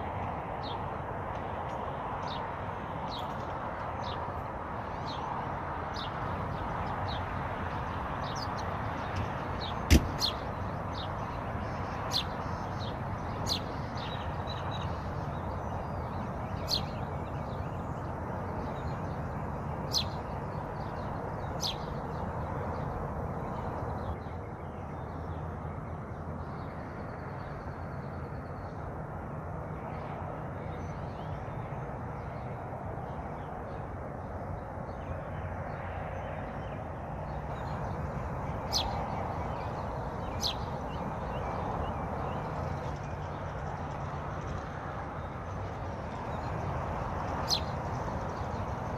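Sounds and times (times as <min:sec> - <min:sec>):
bird calls: 0:08.2 - 0:18.0, 0:37.3 - 0:43.4, 0:47.4 - 0:48.7.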